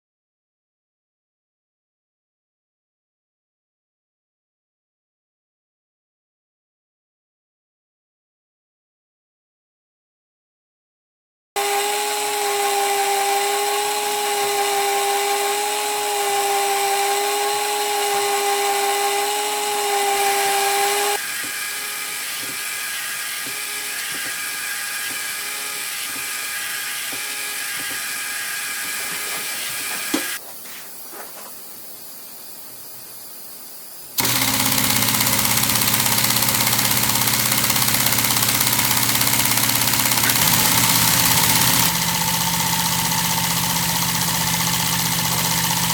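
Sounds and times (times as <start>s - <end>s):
pneumatic engine hissing: 20.4s - 31.4s.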